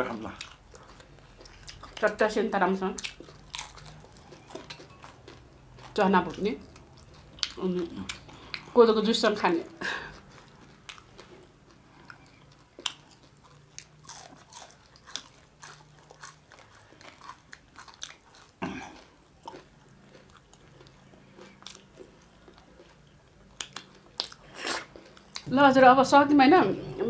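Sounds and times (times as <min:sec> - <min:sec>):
chewing and biting: 0:00.2 - 0:02.3, 0:02.9 - 0:08.8, 0:10.1 - 0:25.5.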